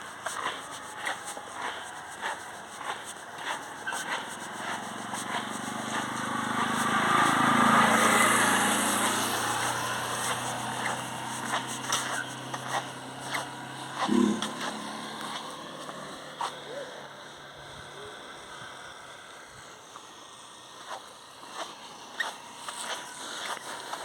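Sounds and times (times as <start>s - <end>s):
motor vehicle passing by: 0.0s - 17.4s.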